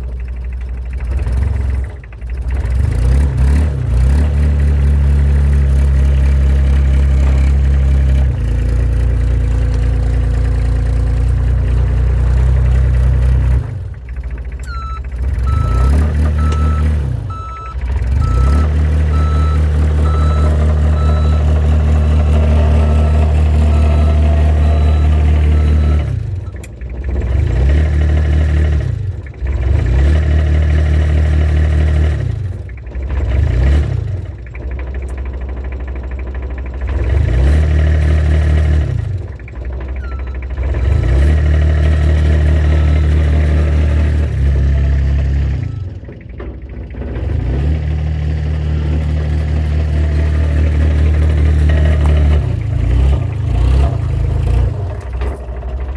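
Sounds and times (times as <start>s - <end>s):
dumper engine revving: 0.0s - 55.9s
high beep: 14.7s - 26.1s.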